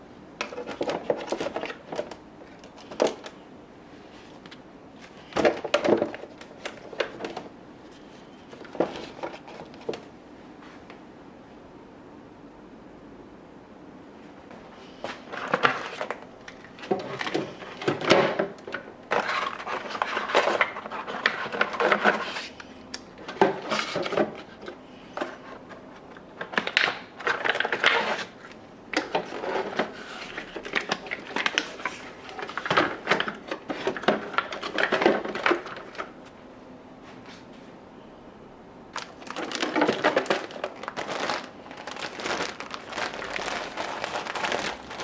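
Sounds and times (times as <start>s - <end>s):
household objects clattering: 39.2s - 45.0s.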